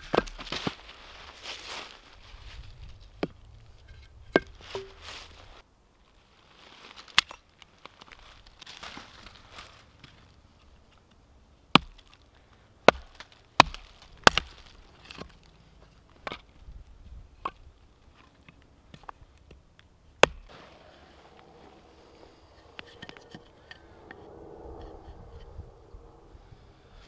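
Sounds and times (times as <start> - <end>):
axe chopping wood: 0.0 - 0.7, 4.3 - 5.0, 11.7 - 12.1, 12.8 - 15.3, 20.2 - 20.5.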